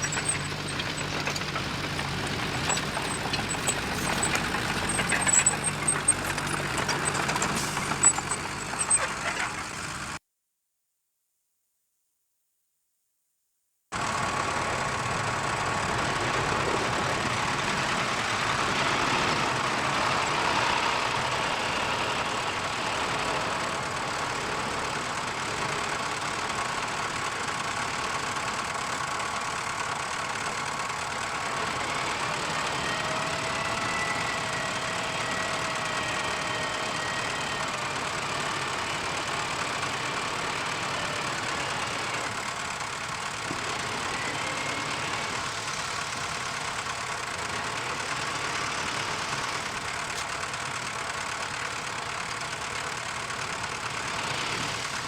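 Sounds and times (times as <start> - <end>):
heavy machinery engine running: 0.0 - 10.2, 14.0 - 55.0.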